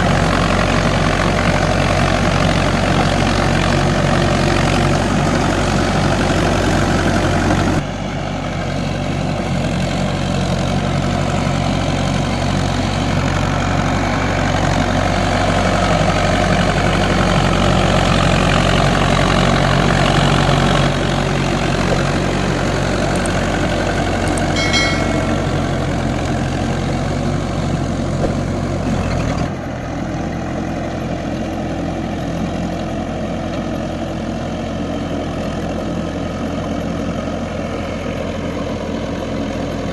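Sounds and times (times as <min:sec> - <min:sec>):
tractor diesel engine running: 0:00.0 - 0:39.9
high-pitched tone: 0:24.5 - 0:26.5.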